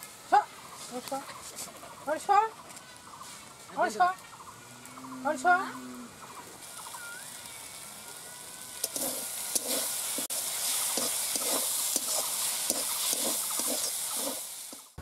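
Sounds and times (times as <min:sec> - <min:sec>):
leaves sizzling in oil: 0:00.0 - 0:15.0
metal spatula scraping pan: 0:10.9 - 0:14.9.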